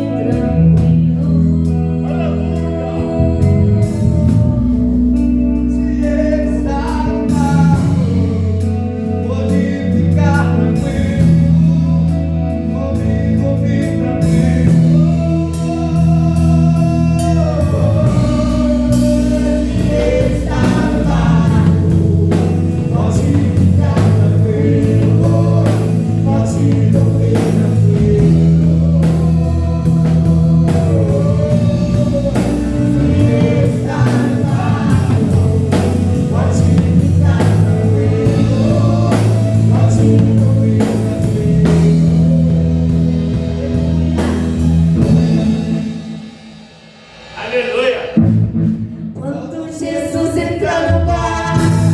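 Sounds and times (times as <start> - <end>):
woman singing: 0.0 - 8.1, 49.2 - 51.9
keyboard notes: 0.0 - 46.2
bass notes: 0.0 - 46.4, 47.3 - 49.4, 50.1 - 51.9
drum kit beat: 14.0 - 49.0, 51.5 - 51.9.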